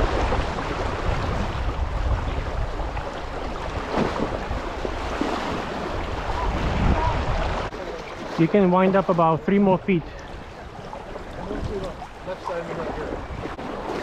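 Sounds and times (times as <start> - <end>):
wind rumbling on microphone: 0.0 - 8.4, 10.0 - 14.0
rushing river water: 0.0 - 14.0.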